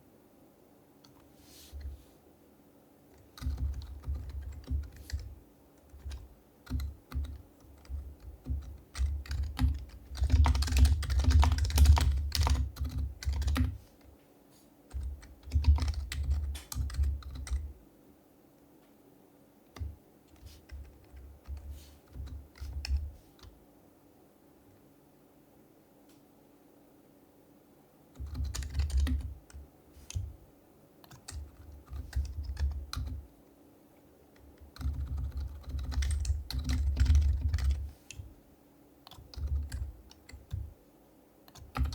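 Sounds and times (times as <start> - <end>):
soft keyboard typing: 3.1 - 14.2, 14.9 - 17.8, 19.7 - 23.6, 28.1 - 30.4, 31.0 - 33.3, 34.3 - 38.3, 39.0 - 40.8, 41.5 - 41.9.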